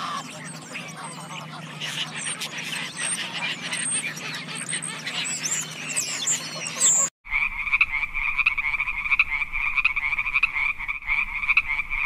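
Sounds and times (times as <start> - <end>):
animal chirps and squeaks: 0.0 - 7.1.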